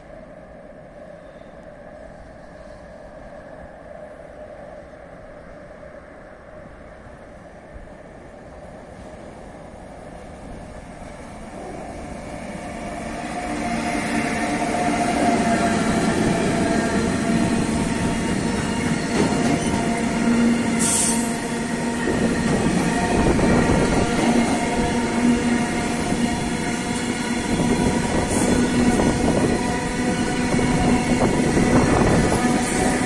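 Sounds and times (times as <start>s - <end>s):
freight train wheels rolling: 7.4s - 33.0s.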